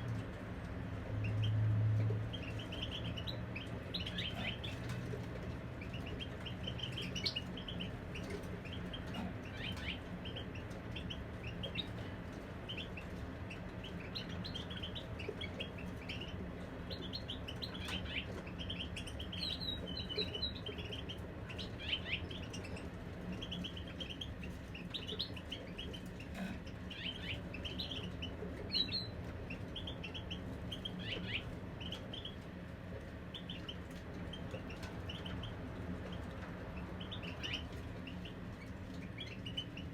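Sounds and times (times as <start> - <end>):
finches twittering and trilling: 13.5 - 32.4, 33.3 - 39.9.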